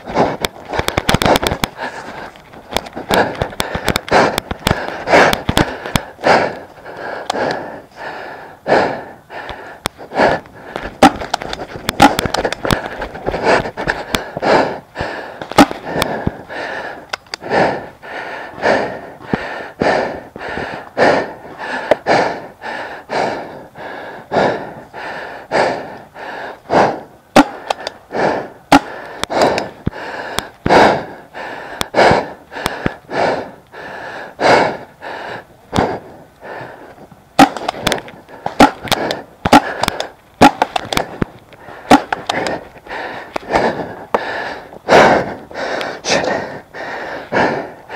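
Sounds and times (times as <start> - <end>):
heavy rapid breathing: 0.0 - 47.9
paintballs striking: 0.1 - 6.1, 9.8 - 14.4, 15.4 - 16.4, 27.3 - 28.0, 28.7 - 30.5, 37.4 - 42.6
paintball markers firing: 0.2 - 1.9, 2.7 - 6.1, 9.8 - 14.3, 15.4 - 16.4, 27.4 - 28.0, 28.7 - 30.5, 37.4 - 42.6.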